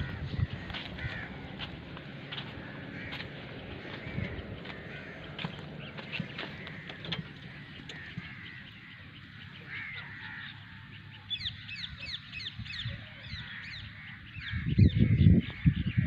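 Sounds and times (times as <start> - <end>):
loud low rumble: 0.0 - 9.3
steady chirring: 0.0 - 10.0
birds chirping: 0.0 - 16.0.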